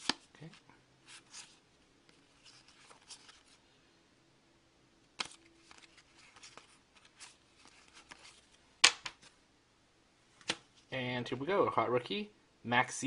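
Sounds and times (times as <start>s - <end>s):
trading cards rustling and clicking: 0.0s - 3.6s, 5.2s - 9.4s.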